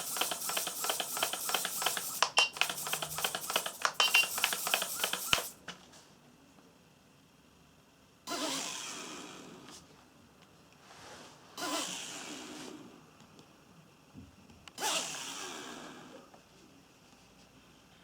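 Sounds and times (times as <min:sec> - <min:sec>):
rapid irregular clicking and rattling: 0:00.0 - 0:05.6.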